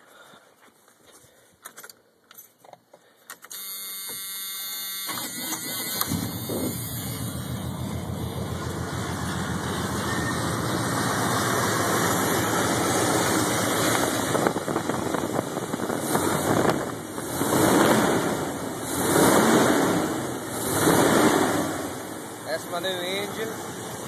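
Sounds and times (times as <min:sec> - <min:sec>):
car engine idling and revving: 0:04.9 - 0:24.0.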